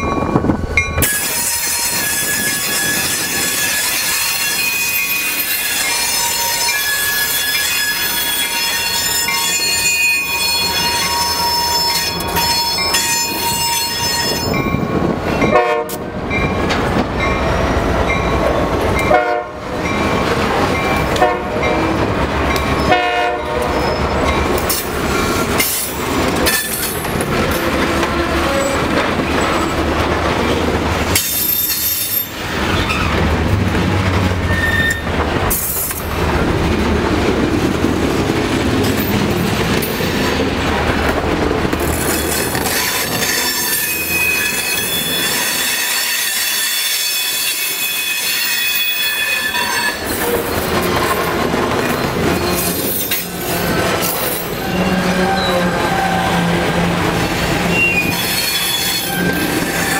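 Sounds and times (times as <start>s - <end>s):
steel wheels squealing: 1.0s - 14.8s, 23.7s - 29.9s, 31.2s - 33.2s, 34.4s - 36.1s, 41.8s - 56.6s, 57.4s - 59.9s
freight cars rumbling: 7.3s - 45.7s, 48.8s - 59.9s.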